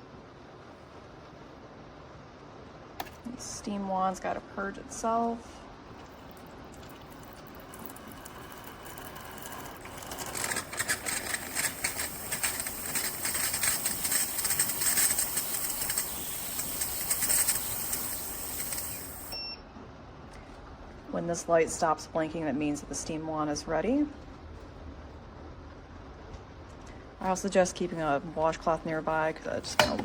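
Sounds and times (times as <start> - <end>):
espresso machine steam wand hissing: 7.2 - 19.4.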